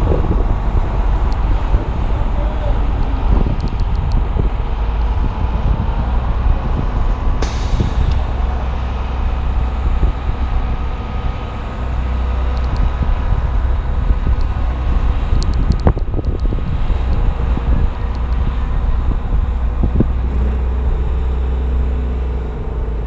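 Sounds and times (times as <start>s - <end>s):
wind buffeting microphone: 0.0s - 23.0s
short hiss: 7.4s - 8.2s.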